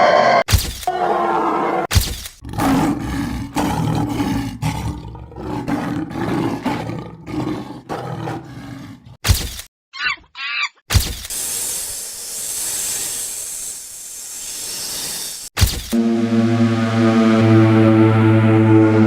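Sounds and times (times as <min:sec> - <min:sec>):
deep roar in grunting pulses: 0:00.0 - 0:09.2, 0:16.0 - 0:19.0.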